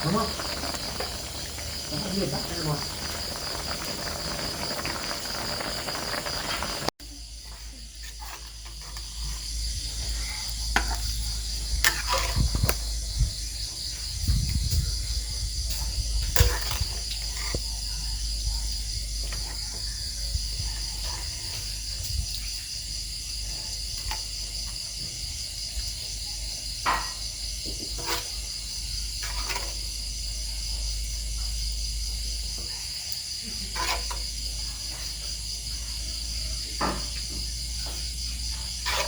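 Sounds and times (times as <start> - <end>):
insects chirping chorus: 0.0 - 39.0.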